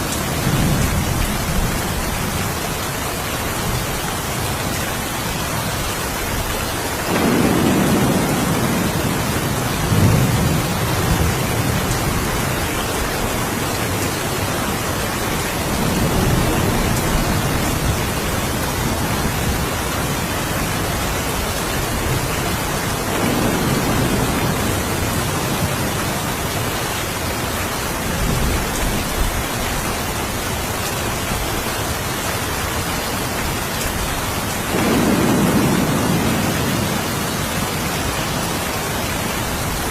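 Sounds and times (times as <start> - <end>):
steady rain falling: 0.0 - 39.9
rumbles of thunder: 7.0 - 26.7, 33.4 - 39.9.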